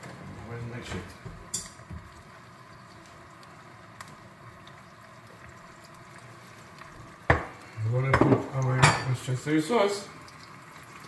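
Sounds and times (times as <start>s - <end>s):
pot simmering with faint hiss: 0.0s - 11.0s.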